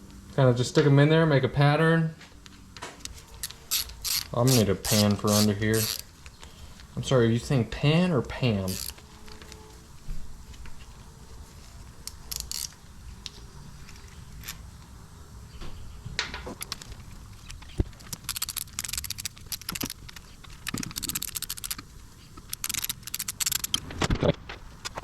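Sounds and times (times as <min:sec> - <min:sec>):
rapid clicking: 0:03.4 - 0:06.1, 0:08.7 - 0:09.0, 0:17.6 - 0:23.8.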